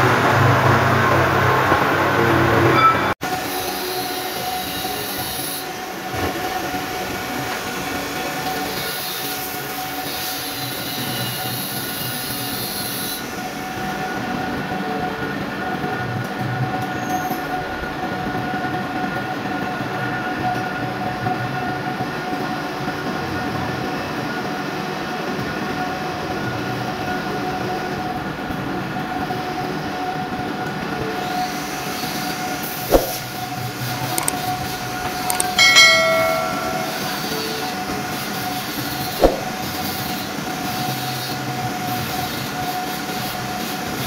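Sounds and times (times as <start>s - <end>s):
sharp knock: 32.9s - 33.2s, 39.2s - 39.5s.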